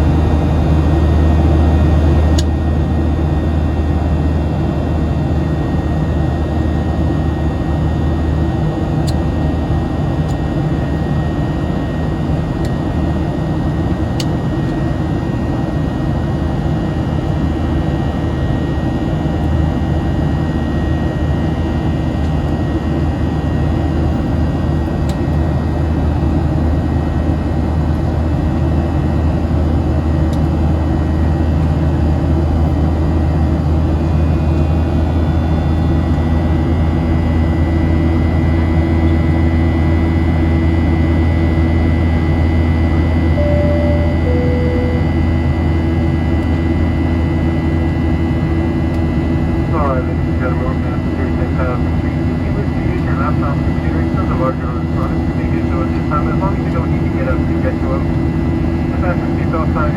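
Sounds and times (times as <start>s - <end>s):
airplane cabin rumble: 0.0s - 59.9s
faint high whine: 43.2s - 46.5s.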